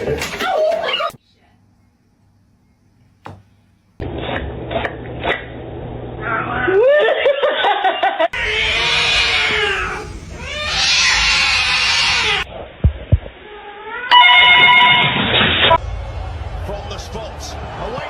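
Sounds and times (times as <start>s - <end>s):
cat yowling: 8.4s - 12.5s.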